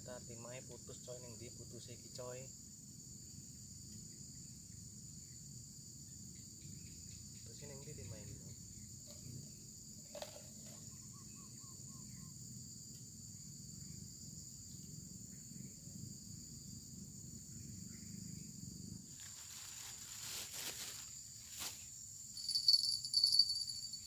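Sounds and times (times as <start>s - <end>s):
crickets and insects droning: 0.0s - 24.0s
faint chirps: 22.4s - 24.0s.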